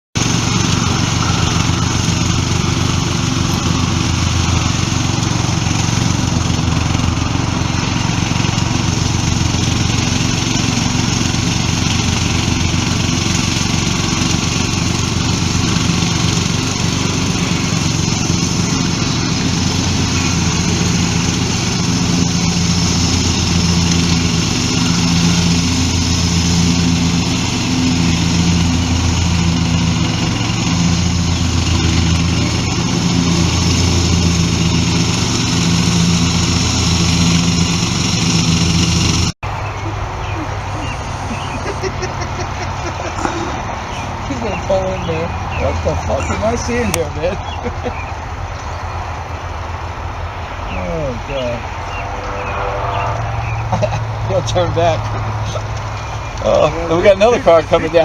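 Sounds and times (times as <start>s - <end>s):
lawnmower engine running: 0.1s - 58.0s.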